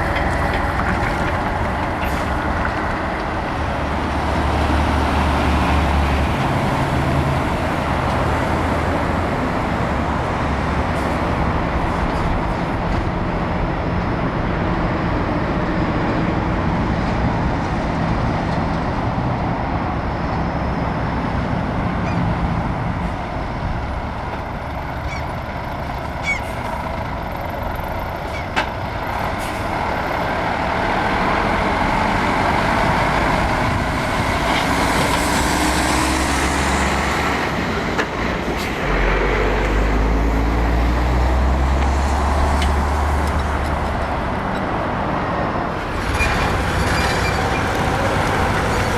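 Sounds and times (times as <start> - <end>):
diesel truck engines droning: 0.0 - 48.9.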